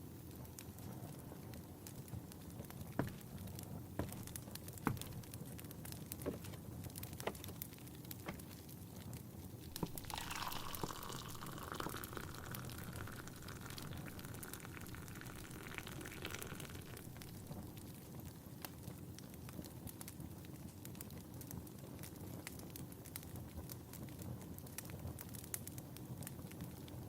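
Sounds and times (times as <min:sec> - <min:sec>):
fireplace crackling and popping: 0:00.0 - 0:27.0
tea pouring into a cup: 0:09.7 - 0:17.8.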